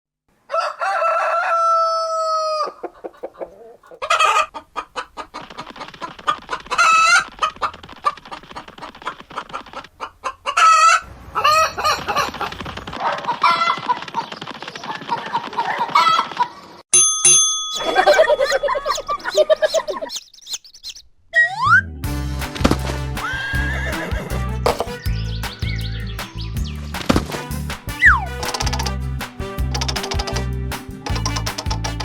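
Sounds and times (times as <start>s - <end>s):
rooster crowing: 0.5s - 4.4s
chickens squawking: 0.5s - 16.8s, 17.7s - 21.8s
chickens clucking: 0.8s - 16.8s, 17.8s - 21.0s, 23.9s - 27.4s.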